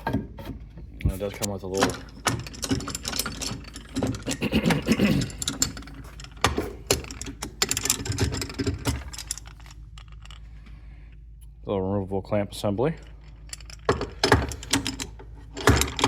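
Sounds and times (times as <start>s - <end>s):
metal parts clicking and rattling: 1.1s - 10.8s, 12.8s - 16.0s.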